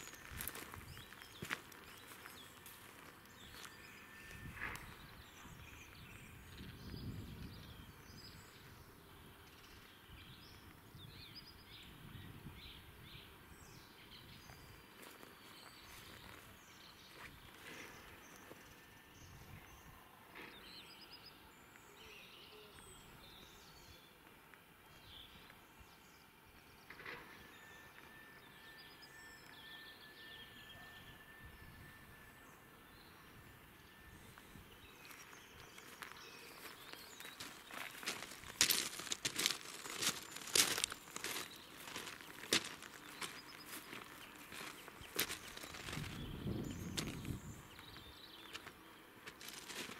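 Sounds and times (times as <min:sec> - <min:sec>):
thin steady high note: 0:27.5 - 0:35.3.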